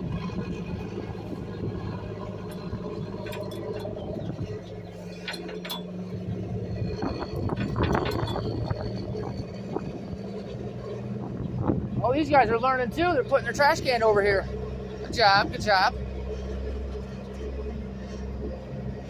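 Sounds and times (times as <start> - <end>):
garbage truck engine humming: 0.0 - 19.0
clinks and knocks: 2.3 - 9.9.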